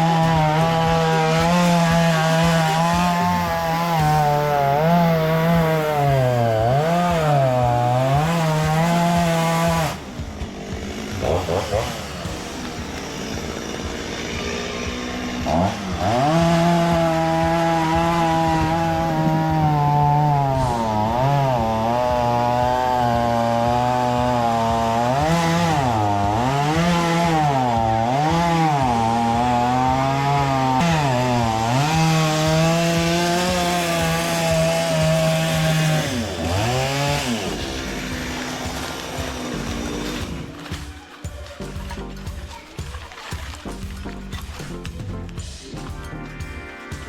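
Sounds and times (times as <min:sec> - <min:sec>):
chainsaw cutting tree trunk: 0:00.0 - 0:47.0.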